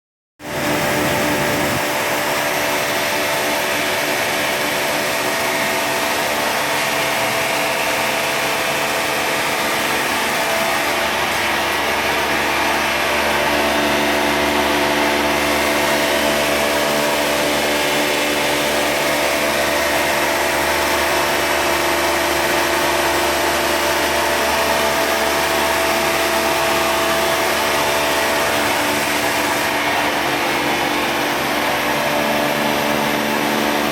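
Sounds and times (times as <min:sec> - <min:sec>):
vacuum pump running: 0:00.4 - 0:33.9.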